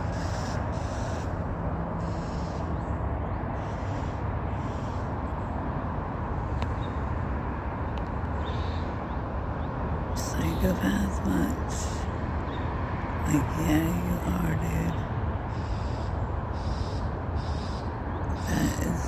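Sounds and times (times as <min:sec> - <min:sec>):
low outdoor rumble: 0:00.0 - 0:19.0
high bird calls: 0:15.5 - 0:19.0.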